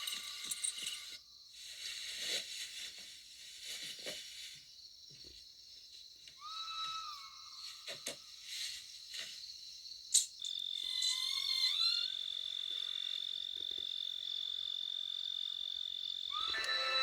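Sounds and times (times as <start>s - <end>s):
high-pitched insect trill: 0.0s - 1.5s, 4.6s - 17.0s
frog calls: 10.4s - 17.0s.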